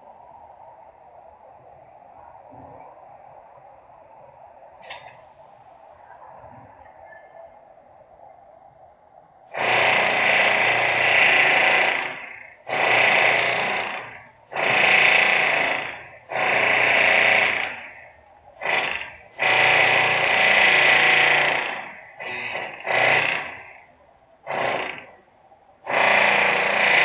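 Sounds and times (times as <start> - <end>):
loud industrial machinery bursts: 9.5 - 25.2, 25.8 - 27.0.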